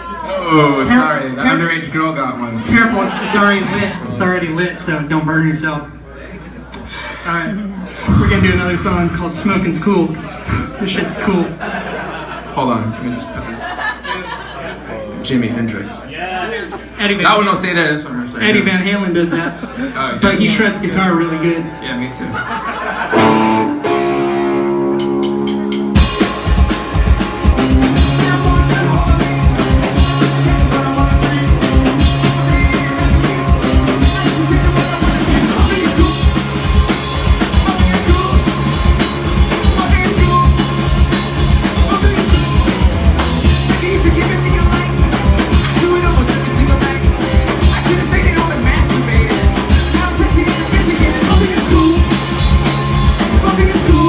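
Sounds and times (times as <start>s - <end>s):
rock band playing: 7.8s - 12.3s, 20.2s - 54.0s
electric guitar: 23.1s - 54.0s.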